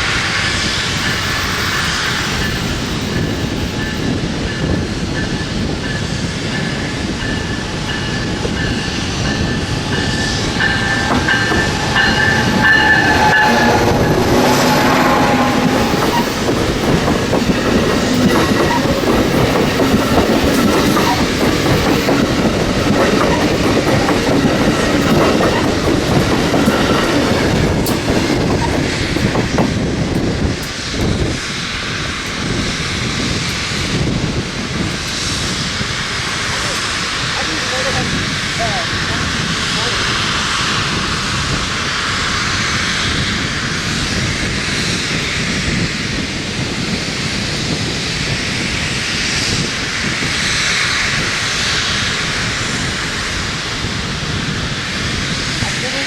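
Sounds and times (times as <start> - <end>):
train rumble: 0.0 - 56.0
high-pitched tones: 1.0 - 4.1, 8.0 - 28.8
train wheels clicking over rail joints: 1.0 - 40.1.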